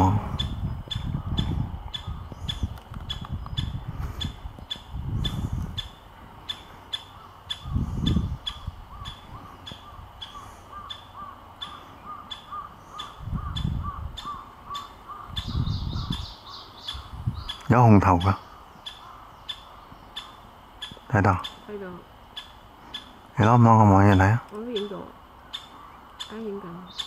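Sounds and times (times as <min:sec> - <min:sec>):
low rumbles: 0:00.0 - 0:24.6
lower rapid bird call: 0:00.0 - 0:27.0
bird sharp repeated notes: 0:00.1 - 0:21.7.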